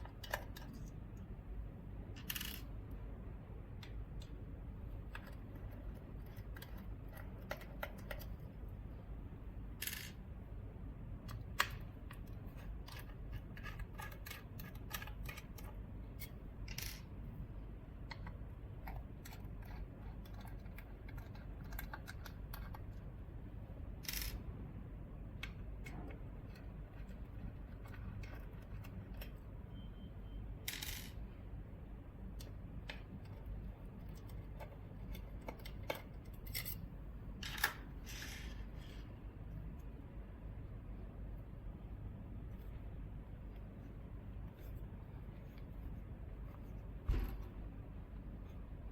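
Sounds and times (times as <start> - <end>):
steady low hum: 0.0 - 48.9
tools clicking and tapping: 5.0 - 8.4, 32.4 - 36.8.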